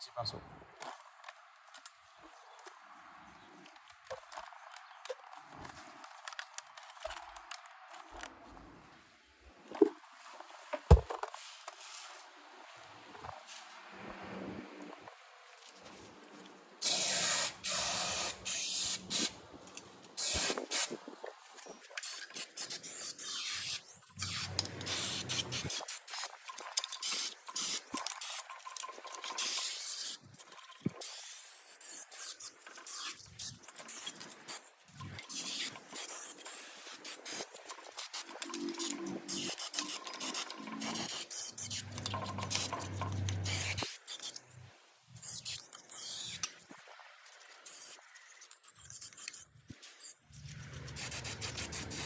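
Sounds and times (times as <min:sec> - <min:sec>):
aerosol spray hissing: 0:16.8 - 0:19.3, 0:22.6 - 0:25.9
brush scrubbing engine: 0:39.8 - 0:43.8.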